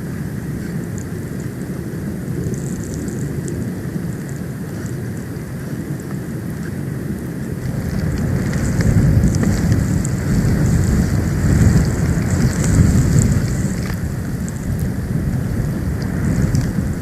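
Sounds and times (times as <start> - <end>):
wind buffeting microphone: 0.0 - 17.0
faint ticks: 2.4 - 5.3, 7.6 - 16.9.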